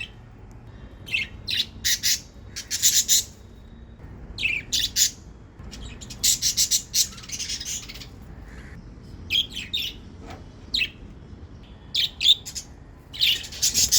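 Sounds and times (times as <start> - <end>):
budgerigars chirping: 1.1 - 3.4, 4.4 - 10.0, 12.0 - 13.9.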